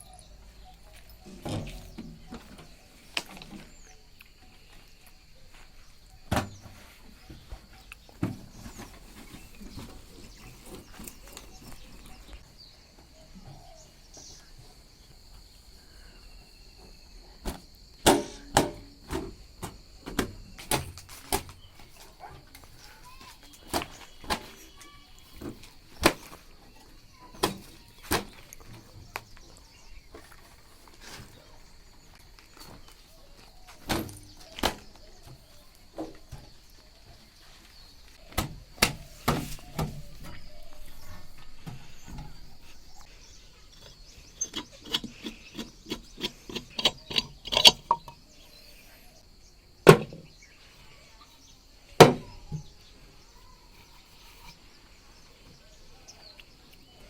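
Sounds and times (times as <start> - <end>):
sharp knocks and thwacks: 38.3 - 40.1.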